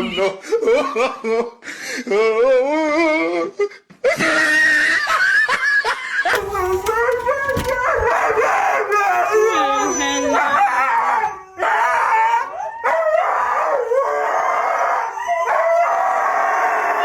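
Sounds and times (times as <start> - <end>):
dog howling: 7.8 - 17.0.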